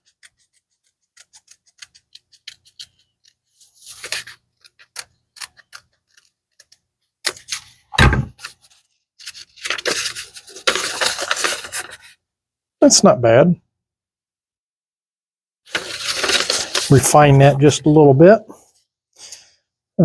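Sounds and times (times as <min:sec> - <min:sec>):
scissors snipping paper: 0:00.0 - 0:03.4, 0:04.0 - 0:07.5
paper rustling: 0:00.0 - 0:12.2, 0:15.7 - 0:18.0.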